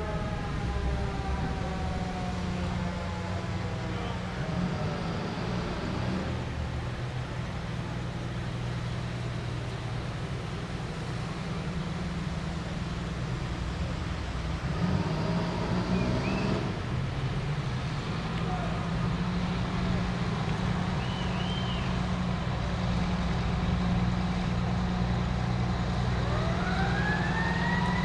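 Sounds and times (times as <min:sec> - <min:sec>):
siren winding down: 0:00.0 - 0:04.1, 0:26.2 - 0:28.0
diesel engine rumbling: 0:00.0 - 0:28.0.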